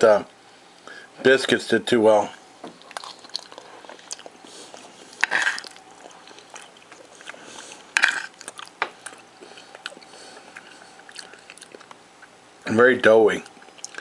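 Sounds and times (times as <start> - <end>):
person chewing food: 2.7 - 12.4, 13.4 - 14.0
wet mouth clicks: 13.4 - 14.0.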